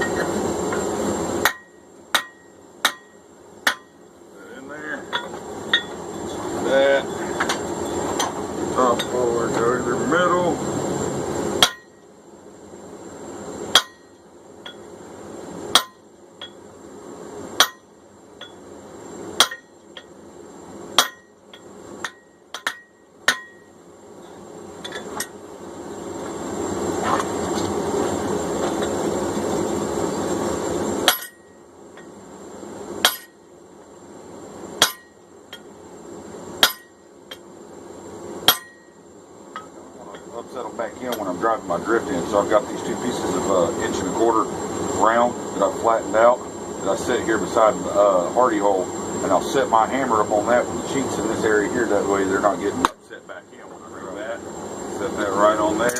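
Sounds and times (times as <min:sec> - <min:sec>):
hammer striking on anvil: 0:01.4 - 0:04.0, 0:11.6 - 0:12.0, 0:13.7 - 0:14.8, 0:15.7 - 0:16.6, 0:17.6 - 0:18.6, 0:19.4 - 0:20.1, 0:21.0 - 0:23.7, 0:31.0 - 0:31.5, 0:33.0 - 0:33.4, 0:34.8 - 0:35.6, 0:36.6 - 0:37.0, 0:38.4 - 0:39.0.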